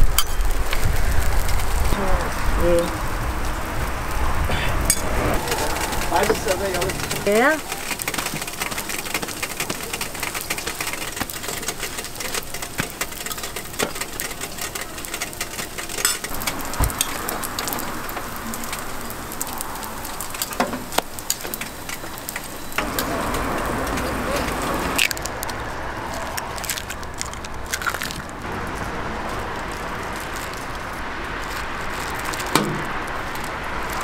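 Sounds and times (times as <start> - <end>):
food sizzling on griddle: 0.0 - 26.6, 28.5 - 34.0
metal tongs clicking on griddle: 6.2 - 16.4.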